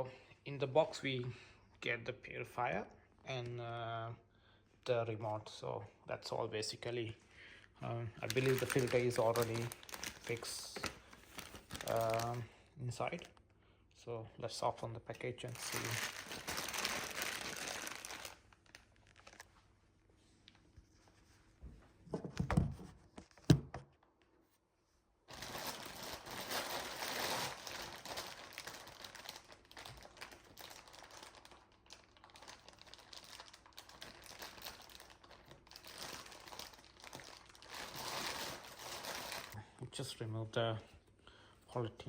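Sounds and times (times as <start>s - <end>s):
plastic cover crinkling: 8.0s - 13.4s, 15.1s - 19.7s, 25.3s - 39.6s.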